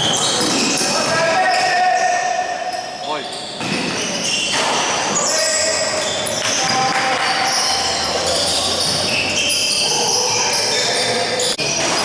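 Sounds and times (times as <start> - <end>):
ball bouncing on court: 3.6 - 4.9.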